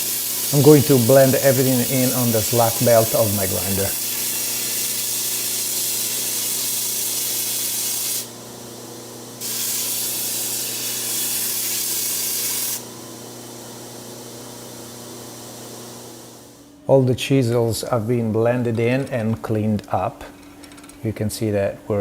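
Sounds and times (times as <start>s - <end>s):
chisel sanding hiss: 0.0s - 8.4s, 9.4s - 12.9s
belt grinder motor hum: 0.0s - 8.6s, 9.3s - 14.8s.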